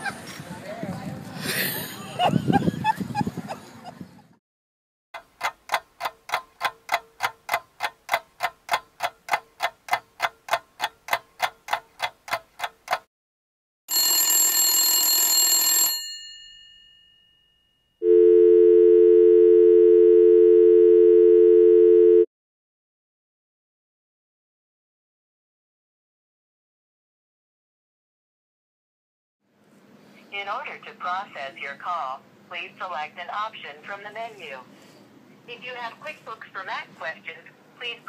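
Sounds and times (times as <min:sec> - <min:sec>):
bell-like telephone ring: 0:13.9 - 0:18.0
short telephone beeps: 0:18.0 - 0:22.3
two-tone dial tone: 0:18.0 - 0:22.3.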